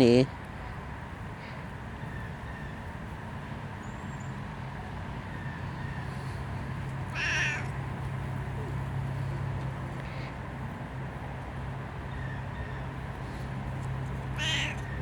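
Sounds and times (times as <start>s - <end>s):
cat meowing: 7.1s - 7.7s, 14.4s - 14.8s.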